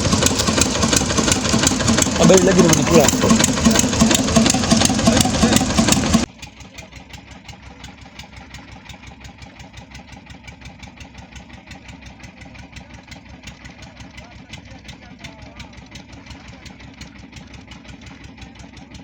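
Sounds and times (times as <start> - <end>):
engine chugging steadily: 0.0 - 19.0.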